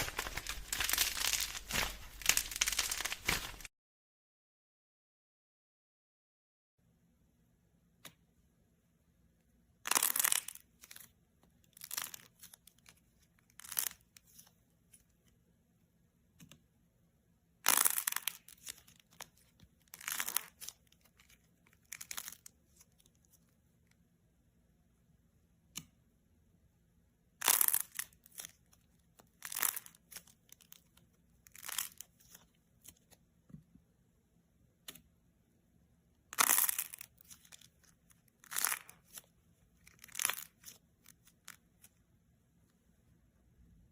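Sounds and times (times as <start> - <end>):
dried clay cracking: 0.0 - 3.7, 9.9 - 14.5, 17.6 - 23.4, 27.4 - 33.2, 36.3 - 42.0.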